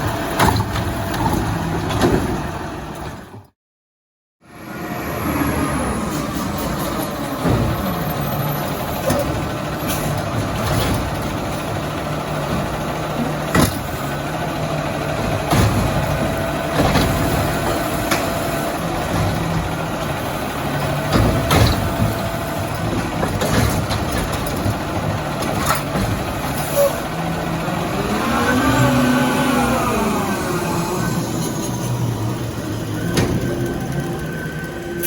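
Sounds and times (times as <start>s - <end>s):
garbage truck diesel engine: 0.0s - 3.6s, 4.4s - 35.0s
sharp knocks and bangs: 9.0s - 14.1s, 15.1s - 20.2s, 20.8s - 26.7s.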